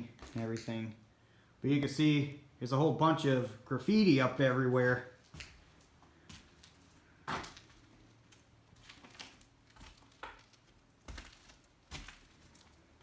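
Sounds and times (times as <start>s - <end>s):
footsteps crunching on wooden floor: 5.2s - 12.8s.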